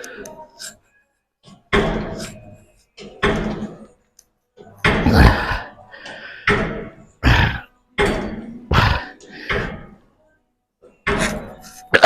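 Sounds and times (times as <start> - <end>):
leg press heavy thuds: 1.6 - 2.4, 4.8 - 5.7, 6.4 - 10.0.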